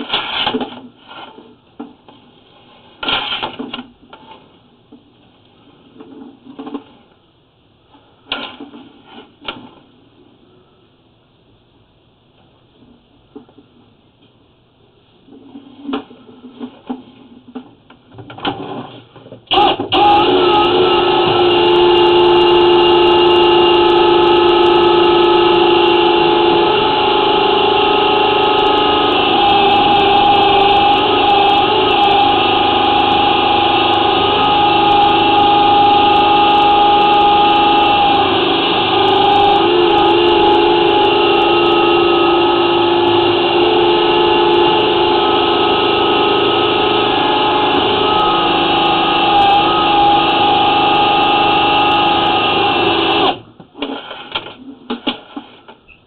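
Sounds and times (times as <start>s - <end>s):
drain-cleaning machine whining: 19.5s - 53.4s.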